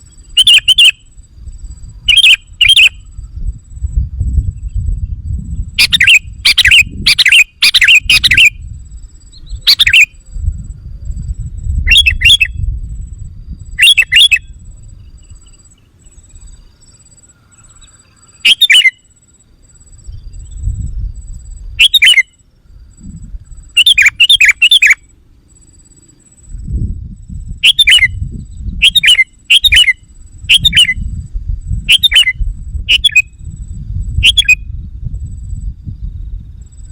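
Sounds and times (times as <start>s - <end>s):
bird chattering whistles: 0.0s - 1.2s, 2.0s - 3.1s, 5.7s - 8.7s, 9.3s - 10.2s, 11.8s - 12.6s, 13.7s - 16.7s, 17.5s - 19.2s, 21.8s - 22.4s, 23.5s - 25.1s, 27.5s - 31.2s, 31.8s - 33.4s, 34.2s - 34.6s
low rumble: 3.0s - 5.8s, 10.2s - 11.9s.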